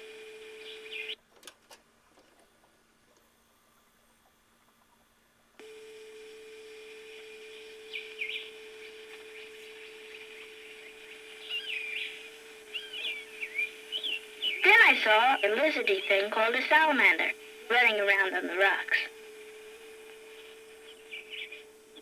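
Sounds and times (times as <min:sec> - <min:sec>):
bird chirps: 0:00.6 - 0:01.2, 0:07.9 - 0:16.4, 0:20.8 - 0:22.0
steady low hum: 0:02.6 - 0:22.0.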